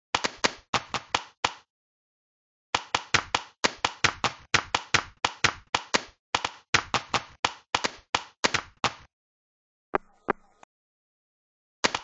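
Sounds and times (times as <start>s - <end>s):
hands clapping rapidly: 0.2s - 1.7s, 2.8s - 9.1s.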